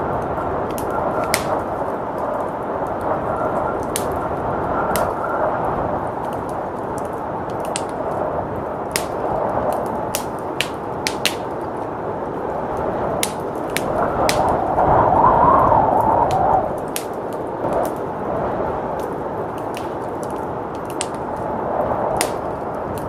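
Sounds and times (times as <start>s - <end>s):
blizzard wind rushing: 0.0s - 23.0s
wood fire crackling: 0.0s - 23.0s.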